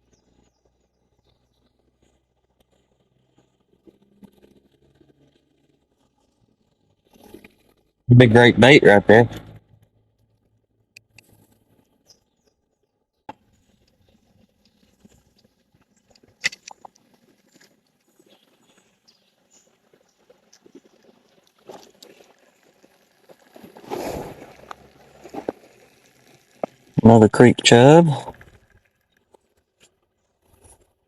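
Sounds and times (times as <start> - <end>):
fishing tackle clicks and rustling: 13.7 - 19.1, 19.7 - 27.0.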